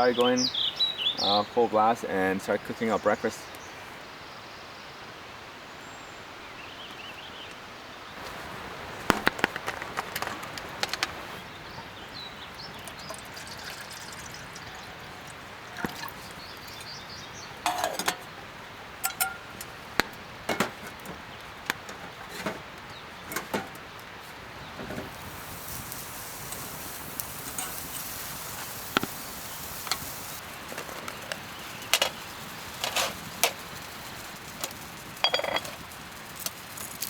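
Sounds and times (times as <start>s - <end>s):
birds chirping faintly: 0.0s - 37.0s
camp gear clinking and knocking: 8.2s - 11.3s, 17.6s - 18.4s, 19.0s - 23.9s, 30.7s - 32.2s, 32.8s - 33.7s, 34.6s - 36.6s.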